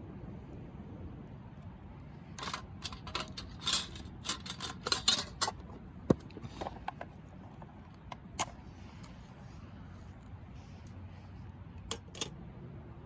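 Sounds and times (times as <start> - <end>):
steady low rumble: 0.0 - 13.0
cookware clattering and clinking: 2.4 - 5.6.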